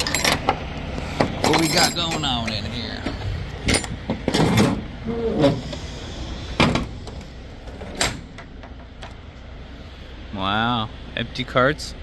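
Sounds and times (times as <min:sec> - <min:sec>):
trailer doors clanking open: 0:00.0 - 0:09.2.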